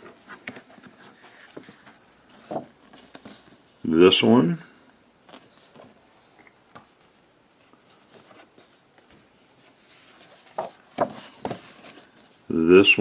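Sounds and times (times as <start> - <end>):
paper rustling: 0.0 - 3.6, 5.2 - 6.8, 7.8 - 12.4
paper crackles: 7.9 - 12.3.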